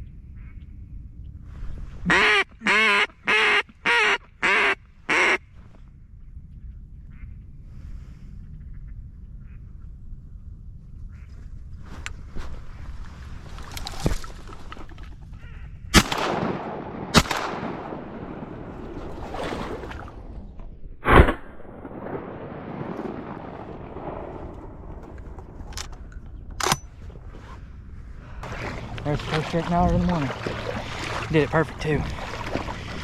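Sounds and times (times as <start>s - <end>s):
shotgun shots: 16.0s - 18.7s, 21.0s - 24.3s.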